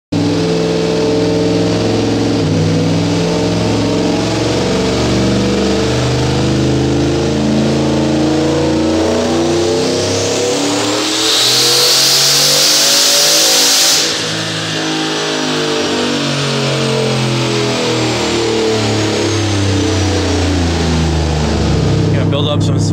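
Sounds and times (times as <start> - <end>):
car engine accelerating: 0.1 - 22.9
loud hissing rush: 9.8 - 16.3.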